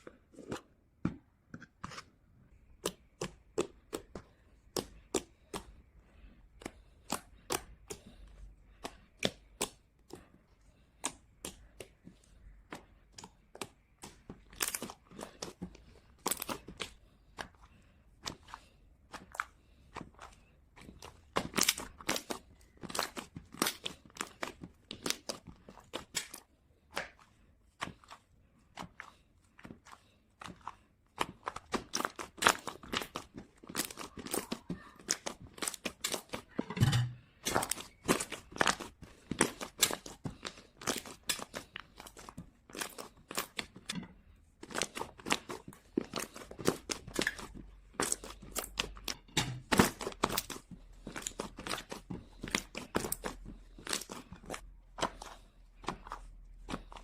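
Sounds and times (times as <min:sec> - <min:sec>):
slime crackling and popping: 0:13.4 - 0:17.0, 0:20.3 - 0:28.1, 0:30.5 - 0:36.6, 0:37.4 - 0:44.0, 0:44.6 - 0:57.0.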